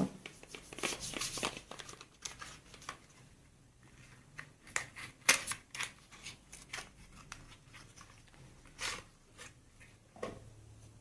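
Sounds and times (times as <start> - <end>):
cream tube packaging rustling: 0.2 - 3.2, 3.8 - 9.6.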